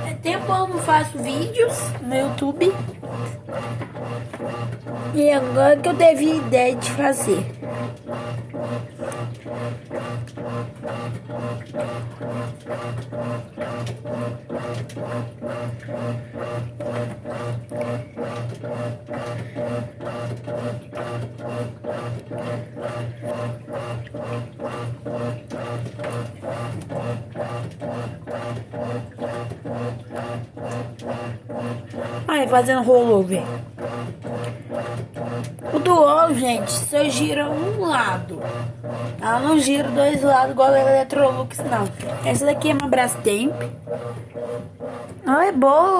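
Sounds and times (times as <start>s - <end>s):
washing machine churning: 0.0s - 45.9s
washing machine motor humming: 0.0s - 45.9s.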